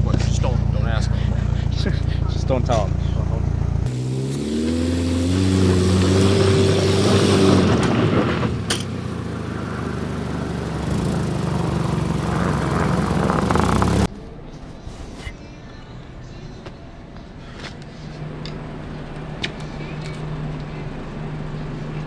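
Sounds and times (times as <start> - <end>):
road noise: 0.0 - 22.0
car engine revving: 3.3 - 14.1.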